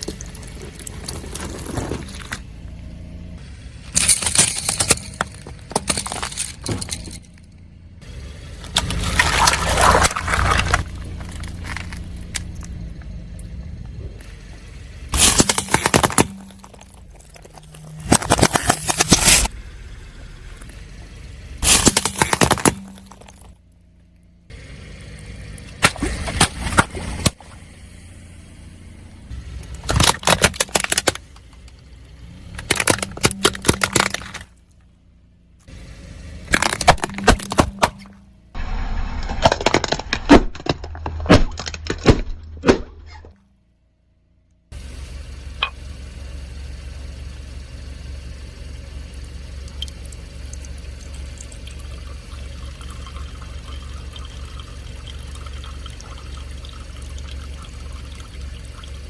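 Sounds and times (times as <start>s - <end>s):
tyres crushing crunchy objects: 0.0s - 2.5s, 3.9s - 7.2s, 8.6s - 12.8s, 14.2s - 19.5s, 21.6s - 23.6s, 29.8s - 31.4s, 32.6s - 34.6s, 36.5s - 43.4s
low car rumble: 0.0s - 59.0s.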